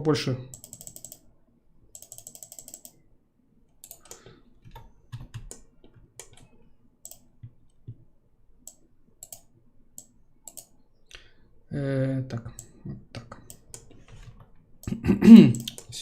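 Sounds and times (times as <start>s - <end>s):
mouse and keyboard clicks: 0.5s - 1.2s, 3.8s - 8.0s, 8.7s - 10.7s.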